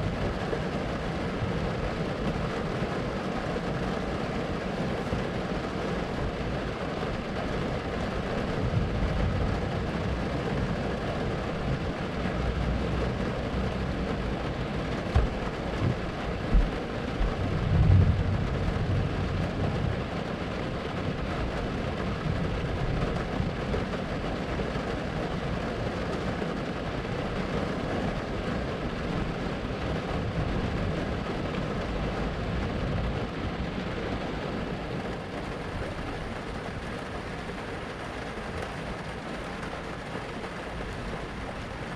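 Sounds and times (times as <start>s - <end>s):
steady rain hiss: 0.0s - 41.9s
low roll of thunder: 8.4s - 23.9s.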